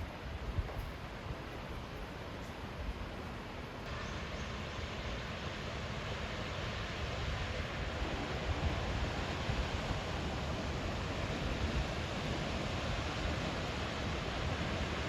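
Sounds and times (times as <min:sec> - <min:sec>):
waterfall rushing: 0:03.9 - 0:15.0.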